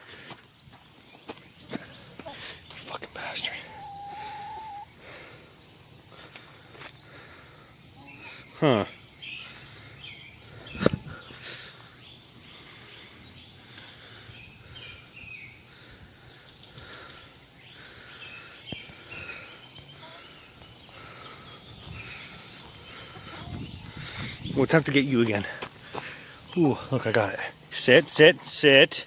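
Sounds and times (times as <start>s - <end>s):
hens clucking softly: 3.4s - 5.6s, 22.1s - 24.3s.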